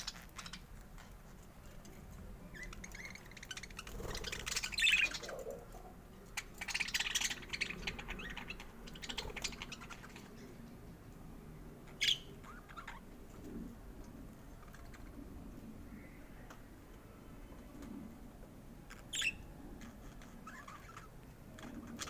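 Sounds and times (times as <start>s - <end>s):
budgerigar chirping and warbling: 2.9s - 5.6s, 12.0s - 13.0s, 19.1s - 19.4s.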